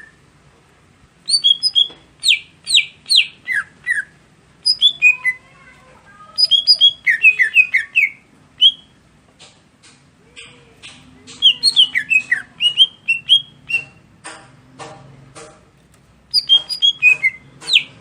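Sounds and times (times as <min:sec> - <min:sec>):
bird singing whistled notes: 0:01.3 - 0:05.4, 0:06.4 - 0:08.9, 0:11.4 - 0:14.0, 0:16.3 - 0:17.9.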